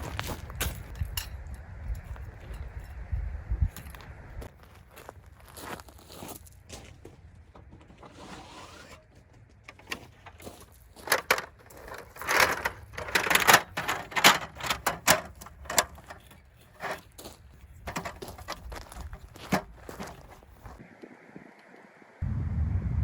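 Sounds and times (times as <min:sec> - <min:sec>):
rustling: 0:07.8 - 0:20.8
sharp clicks and knocks: 0:11.0 - 0:17.0, 0:17.9 - 0:20.5.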